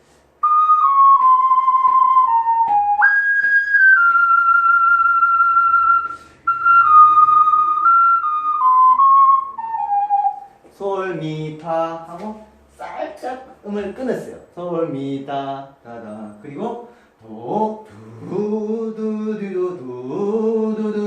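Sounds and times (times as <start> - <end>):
ocarina melody: 0.4 - 10.6
short breath: 6.1 - 6.5, 16.8 - 17.2.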